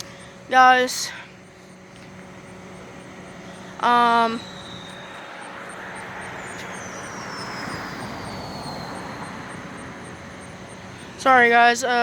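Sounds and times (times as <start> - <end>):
high whine falling in pitch: 0.0 - 12.0
vehicle passing by: 2.8 - 11.4.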